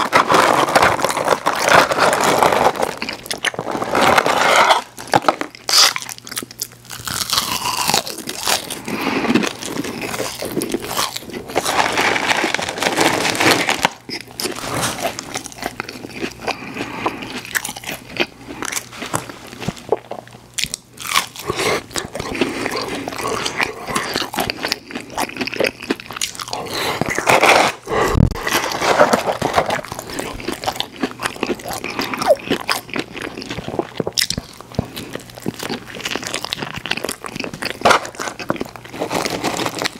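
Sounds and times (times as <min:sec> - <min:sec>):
crunching and chewing fried food: 0:00.0 - 0:39.9.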